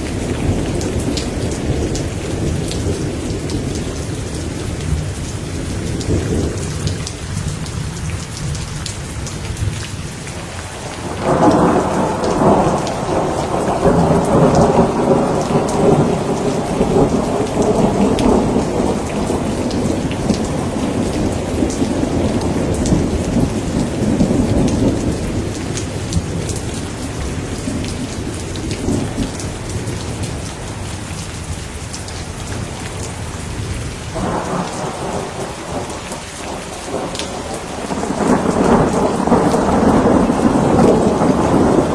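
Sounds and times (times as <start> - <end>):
heavy rain: 0.0 - 41.9
thunder rumbling: 10.8 - 30.8, 32.6 - 41.9.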